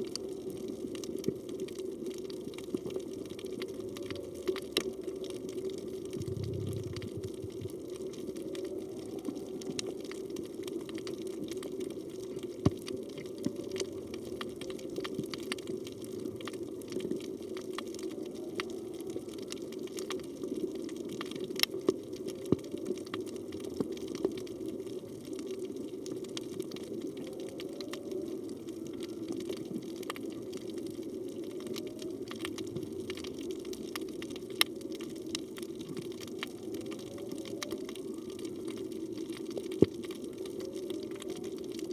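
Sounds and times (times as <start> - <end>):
underwater rush of water: 0.0 - 41.9
whale song: 3.4 - 12.2, 26.6 - 32.9, 36.3 - 41.9.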